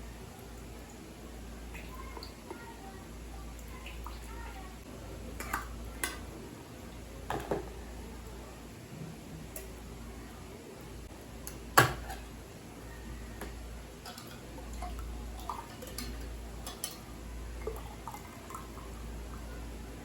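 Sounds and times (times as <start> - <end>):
kitchenware clinking: 5.3 - 6.4, 7.3 - 7.8, 11.4 - 12.3, 13.4 - 17.1.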